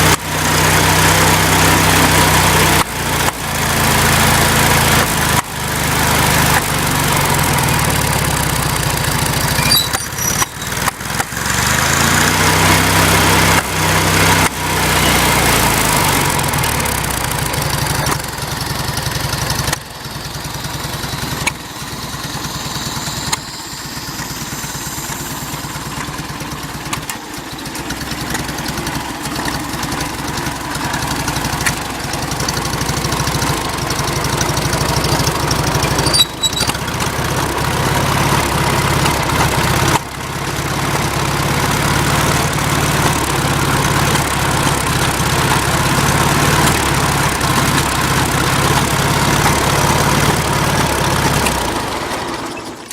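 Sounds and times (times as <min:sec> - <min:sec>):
tractor engine running: 0:00.0 - 0:52.9
sharp engine pop: 0:09.3 - 0:11.5, 0:21.1 - 0:27.6.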